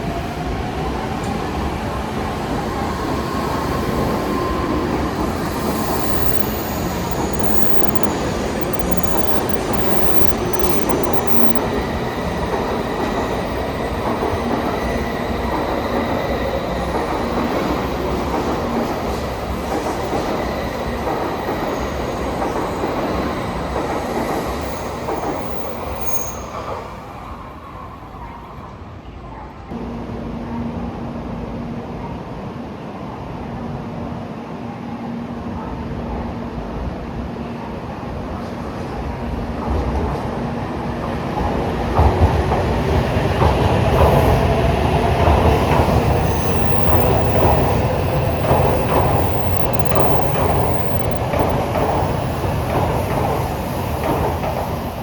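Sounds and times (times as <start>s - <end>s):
train running noise: 0.0s - 55.0s
wheel and motor whines: 4.1s - 14.0s, 45.1s - 52.8s.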